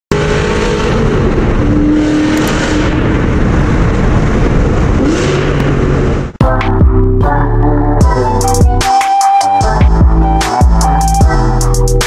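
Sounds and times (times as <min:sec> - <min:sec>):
car engine running under load: 0:00.1 - 0:06.4
heavy road noise: 0:00.1 - 0:08.8.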